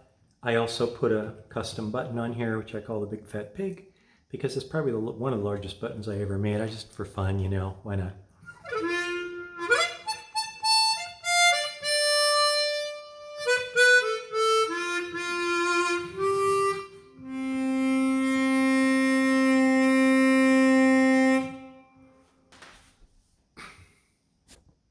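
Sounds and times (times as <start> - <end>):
harmonica playing: 8.5 - 22.4.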